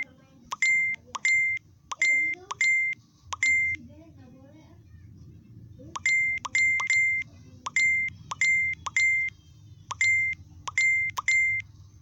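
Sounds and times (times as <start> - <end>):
electronic beeps: 0.0 - 3.8, 6.0 - 11.7.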